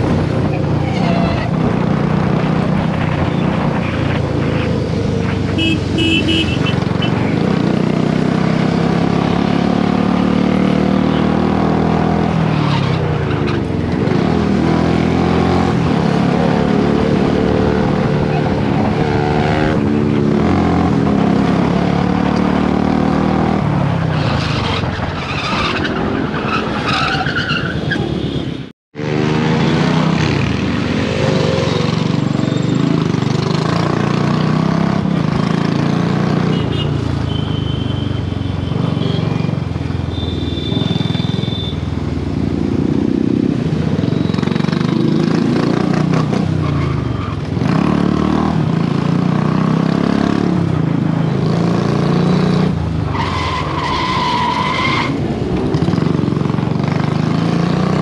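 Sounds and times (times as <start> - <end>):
motorcycle engine revving: 42.4 - 58.0.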